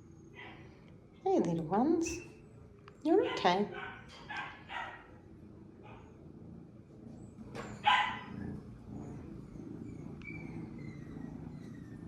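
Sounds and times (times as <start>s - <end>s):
dog barking: 3.2s - 5.1s, 7.8s - 8.3s.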